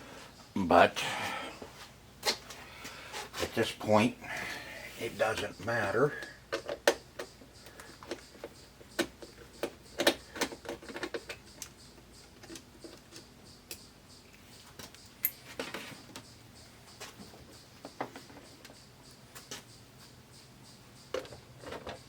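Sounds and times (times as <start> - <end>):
clicks and knocks of tools and parts: 6.1 - 19.7, 21.0 - 22.0.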